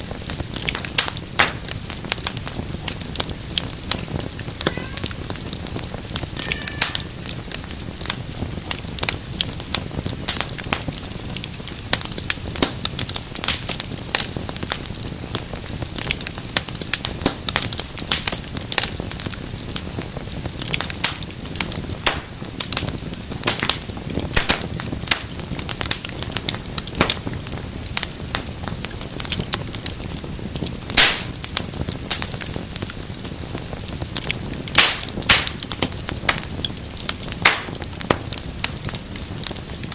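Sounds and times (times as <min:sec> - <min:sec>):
low rumble of flames: 0:00.0 - 0:39.9
wood fire pops and snaps: 0:00.0 - 0:39.9.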